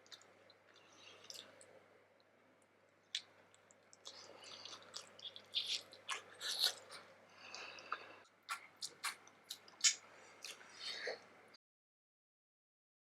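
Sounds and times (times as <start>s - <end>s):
close-miked chewing: 0.0s - 2.3s, 3.1s - 11.5s
mouth clicks: 4.0s - 11.2s.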